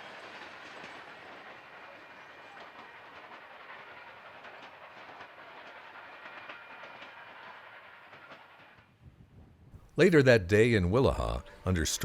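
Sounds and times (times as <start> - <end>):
wheels clicking over rail joints: 0.0 - 9.0
train cars rolling over rails: 0.0 - 9.3.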